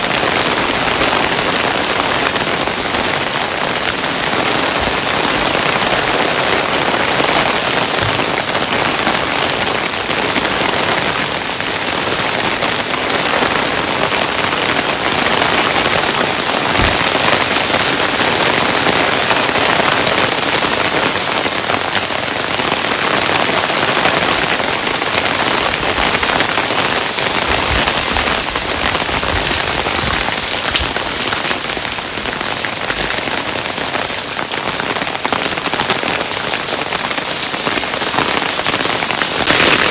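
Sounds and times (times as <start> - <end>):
hailstones pattering: 0.0 - 11.2, 12.0 - 39.9
heavy low thud: 16.7 - 17.4.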